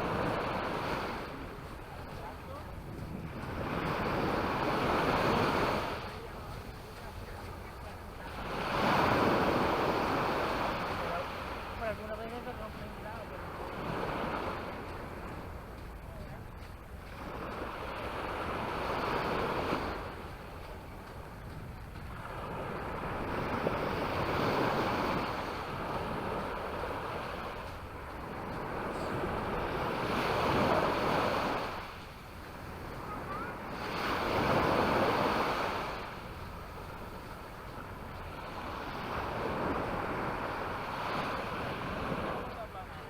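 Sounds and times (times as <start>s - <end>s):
waves breaking on beach: 0.0s - 43.0s
wind rumbling on microphone: 0.0s - 43.0s.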